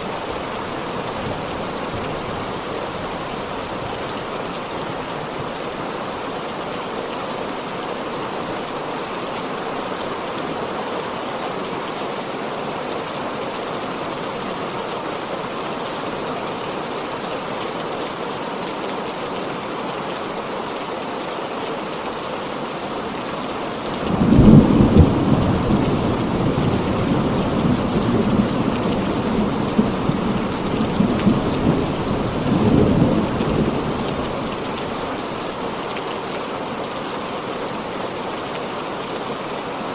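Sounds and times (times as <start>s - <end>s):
heavy rain falling: 0.0s - 39.9s
rumbling thunder: 24.0s - 35.2s.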